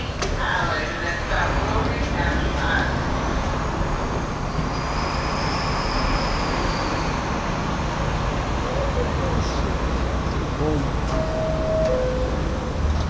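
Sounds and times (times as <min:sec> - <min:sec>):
subway car rumble and rail noise: 0:00.0 - 0:13.0.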